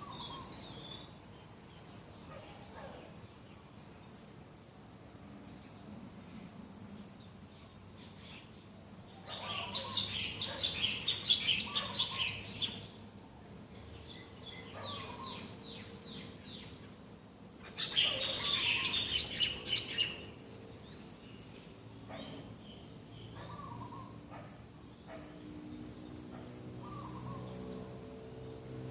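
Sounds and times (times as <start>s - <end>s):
birds chirping rapidly: 0.0s - 3.6s, 7.6s - 13.1s, 13.7s - 17.0s, 17.6s - 28.6s.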